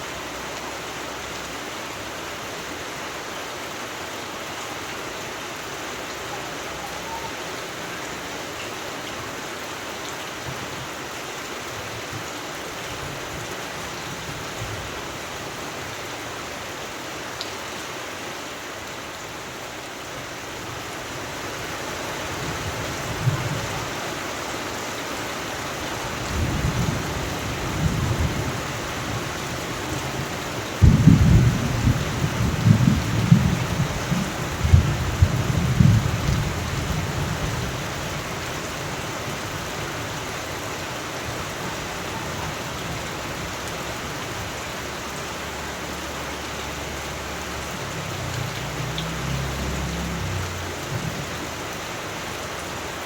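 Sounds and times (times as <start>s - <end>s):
steady rain: 0.0s - 53.0s
thunder rumbling: 26.3s - 38.2s
loud thunder clap: 30.8s - 32.0s.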